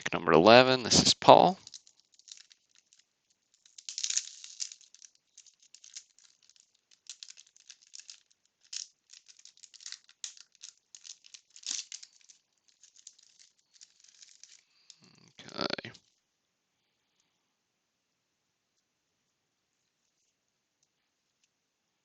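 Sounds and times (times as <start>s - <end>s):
wax paper pack crinkling: 1.4s - 16.2s.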